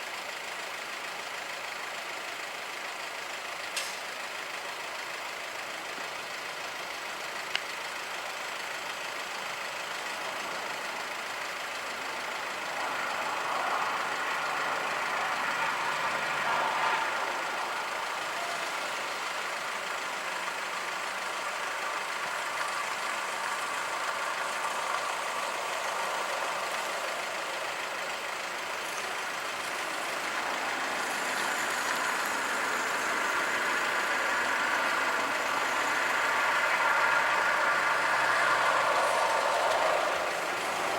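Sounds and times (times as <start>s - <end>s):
road traffic: 0.0s - 40.9s
sharp click: 3.8s - 4.1s.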